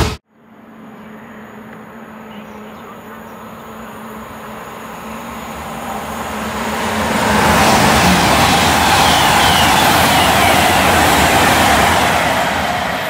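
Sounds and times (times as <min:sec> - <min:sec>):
train passing at speed: 0:00.0 - 0:13.0.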